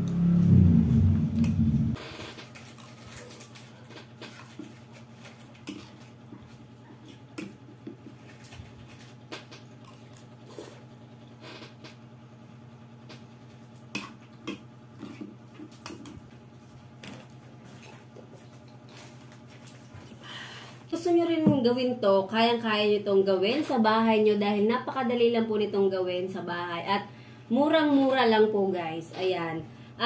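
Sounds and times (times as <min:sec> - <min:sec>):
steady low hum: 0:00.0 - 0:30.0
chewing: 0:02.5 - 0:10.9.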